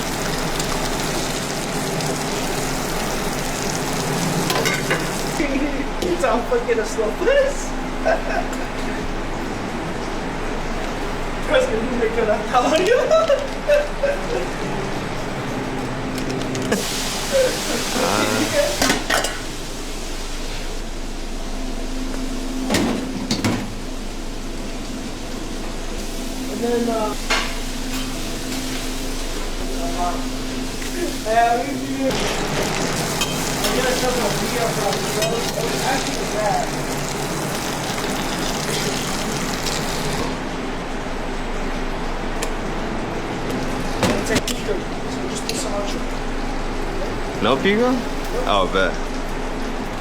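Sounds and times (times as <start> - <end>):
food frying hiss: 0.0 - 5.8, 16.7 - 22.6, 23.7 - 40.6
busy kitchen hum: 0.0 - 50.0.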